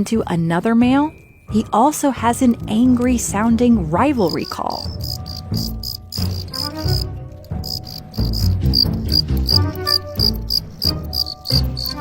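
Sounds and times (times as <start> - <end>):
cricket chirping: 4.2 - 12.0.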